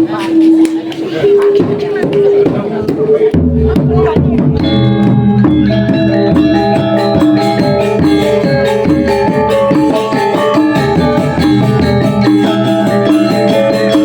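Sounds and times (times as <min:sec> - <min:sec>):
gamelan playing: 0:03.3 - 0:14.0.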